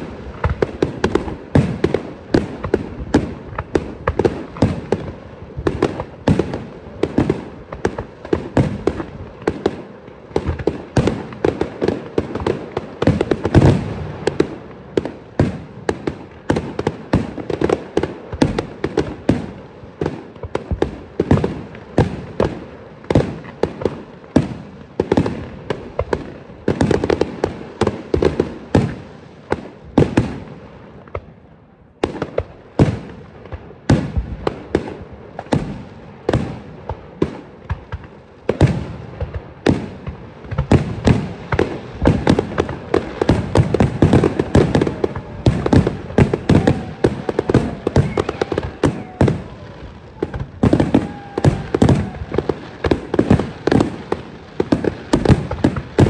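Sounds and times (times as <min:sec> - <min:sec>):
firework shells bursting: 0:36.8 - 0:56.0.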